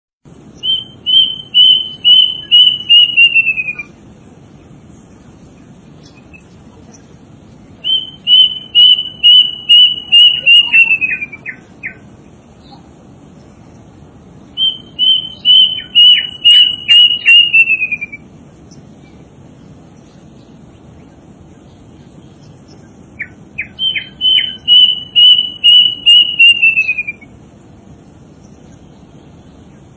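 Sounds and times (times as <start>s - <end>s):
low background noise: 0.2s - 29.9s
songbird whistled notes: 0.6s - 4.0s, 6.0s - 7.0s, 7.7s - 12.8s, 14.5s - 19.2s, 22.4s - 27.4s.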